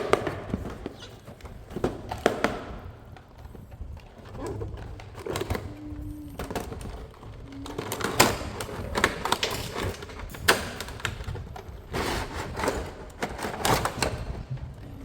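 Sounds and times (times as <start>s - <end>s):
plastic toy parts clicking: 3.4s - 15.0s.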